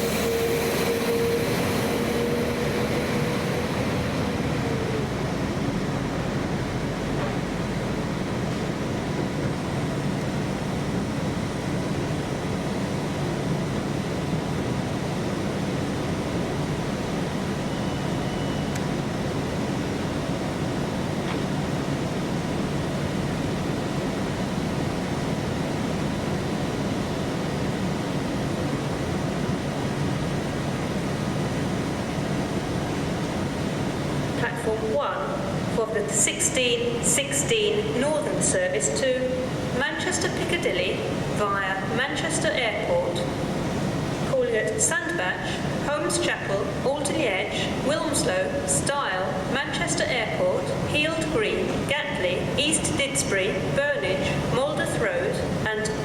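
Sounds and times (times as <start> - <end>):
high whine: 0.0 - 8.3
train rumbling: 0.0 - 56.0.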